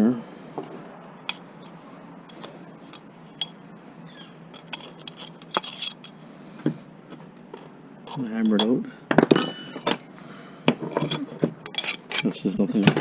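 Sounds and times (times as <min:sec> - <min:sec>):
scrap metal clinking: 0:01.2 - 0:03.6, 0:04.5 - 0:06.2, 0:07.2 - 0:10.1, 0:10.7 - 0:13.0.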